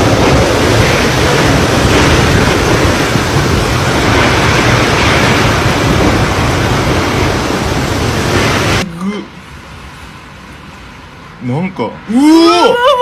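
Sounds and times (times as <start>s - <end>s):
strong wind blowing: 0.0s - 8.8s
wind buffeting on microphone: 0.0s - 8.8s.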